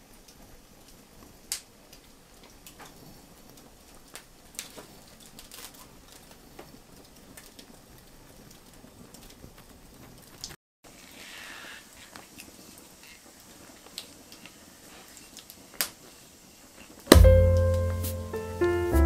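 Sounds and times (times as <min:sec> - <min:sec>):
wood fire crackling and popping: 0:00.0 - 0:10.6, 0:11.9 - 0:18.4
faint steady hiss: 0:00.0 - 0:19.0.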